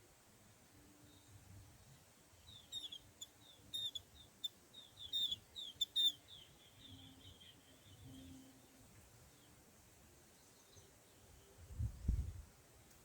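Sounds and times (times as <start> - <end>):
birds chirping: 2.4 - 9.6.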